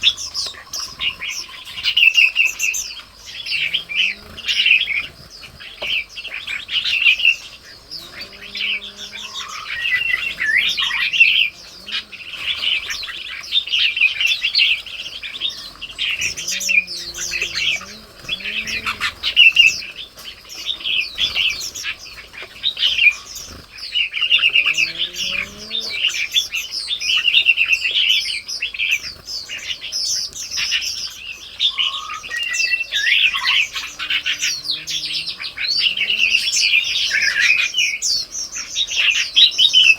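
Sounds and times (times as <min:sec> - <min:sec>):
songbirds chirping and twittering: 0:00.0 - 0:39.9
faint low sliding bird calls: 0:15.4 - 0:19.9, 0:24.2 - 0:26.2, 0:31.9 - 0:37.6.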